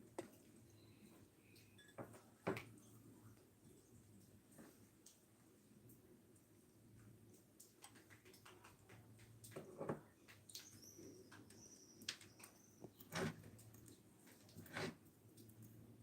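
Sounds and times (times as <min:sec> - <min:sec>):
faint birdsong: 0:00.6 - 0:02.1, 0:10.0 - 0:13.2.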